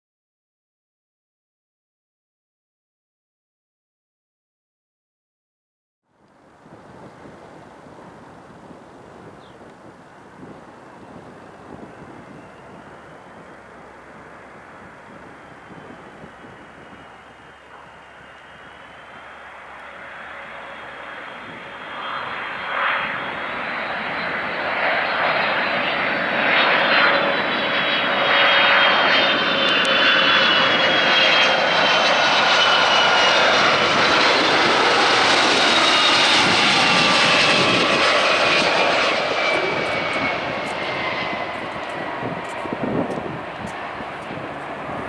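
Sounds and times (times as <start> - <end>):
high fan whine: 6.3 - 19.9, 35.7 - 45.0
jet engines passing: 6.4 - 45.0.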